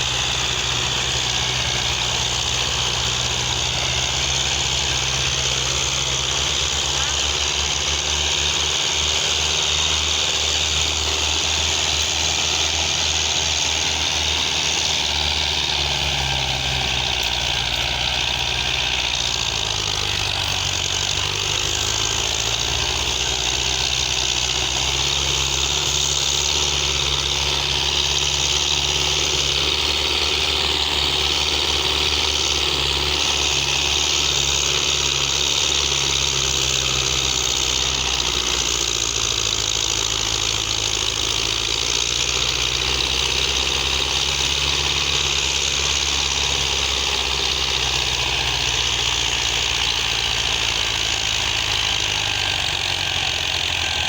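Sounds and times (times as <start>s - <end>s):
tractor diesel engine idling: 0.0s - 54.0s.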